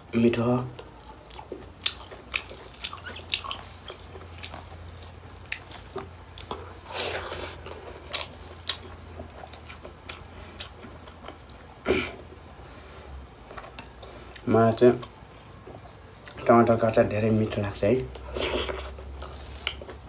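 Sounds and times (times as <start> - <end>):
faint low hum: 0.0 - 20.0
chewing and mouth clicks: 0.7 - 11.8, 13.5 - 16.5, 18.0 - 20.0.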